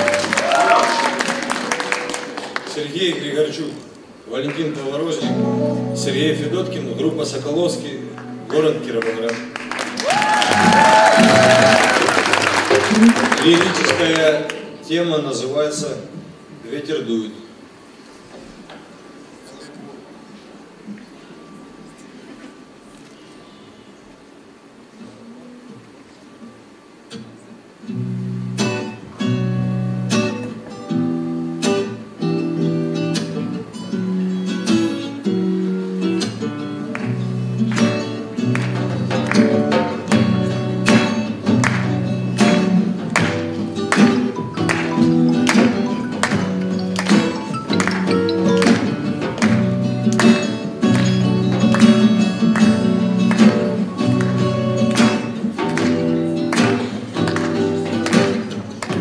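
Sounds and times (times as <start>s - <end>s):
acoustic guitar strumming chords: 1.1s - 2.9s, 5.2s - 10.0s, 27.1s - 59.0s.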